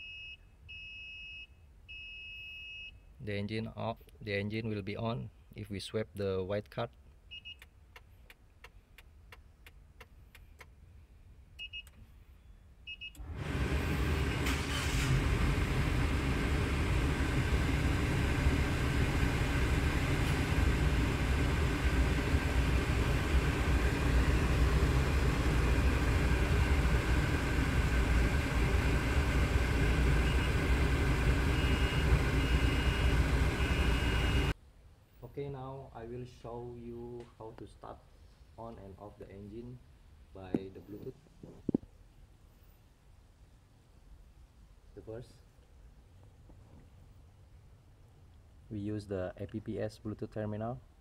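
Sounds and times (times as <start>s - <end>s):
short electronic beeps: 0.0s - 3.1s, 7.3s - 7.7s, 11.6s - 12.0s, 12.9s - 13.2s, 31.5s - 34.5s
engine starting and idling: 13.2s - 34.5s.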